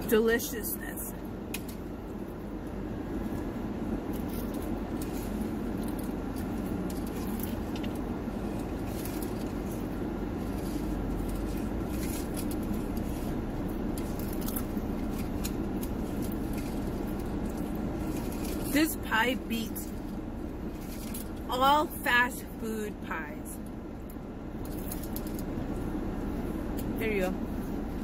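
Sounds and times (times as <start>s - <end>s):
car air conditioning hum: 0.0s - 28.0s
chewing crunchy pastry: 1.6s - 19.0s, 23.6s - 27.0s.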